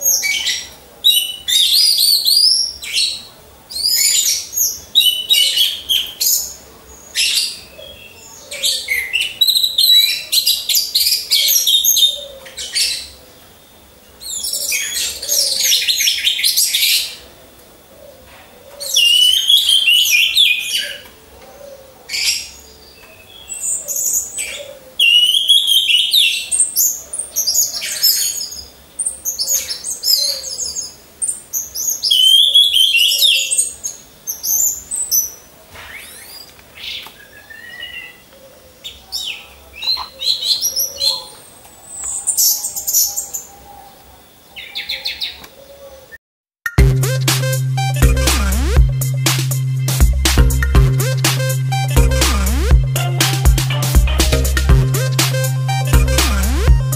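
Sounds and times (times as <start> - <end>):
thrushes singing: 46.7 - 56.9.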